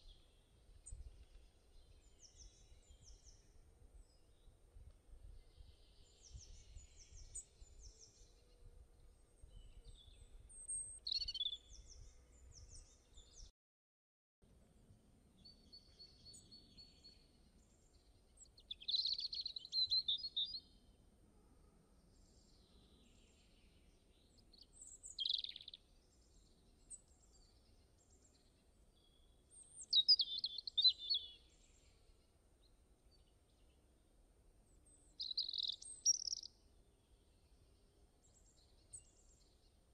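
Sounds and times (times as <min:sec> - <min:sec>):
birds chirping: 0:35.2 - 0:36.5.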